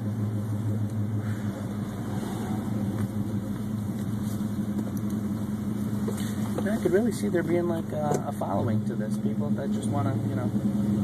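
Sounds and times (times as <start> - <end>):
car engine running: 0.0 - 11.0
road noise: 0.0 - 11.0.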